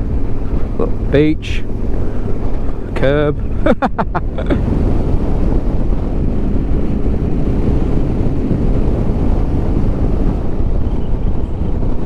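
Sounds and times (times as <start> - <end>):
road noise: 0.0 - 12.0
wind rushing over microphone: 0.0 - 12.0.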